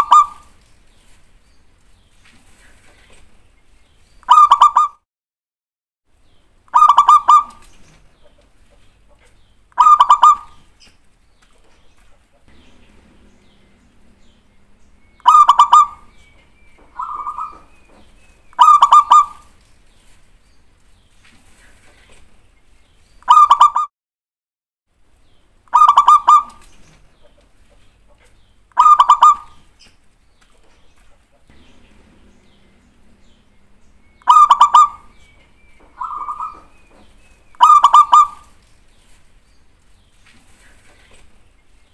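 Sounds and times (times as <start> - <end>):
dove cooing: 12.5 - 19.5, 31.5 - 38.5.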